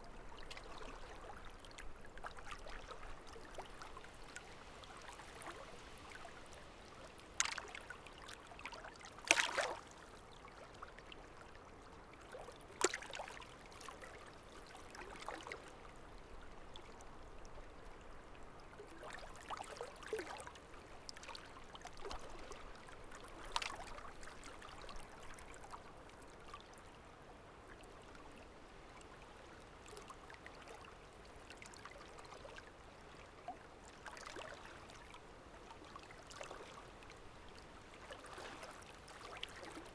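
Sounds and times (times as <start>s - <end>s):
small water splashes: 0.1s - 11.5s, 12.2s - 15.9s, 18.7s - 26.8s, 33.2s - 39.9s.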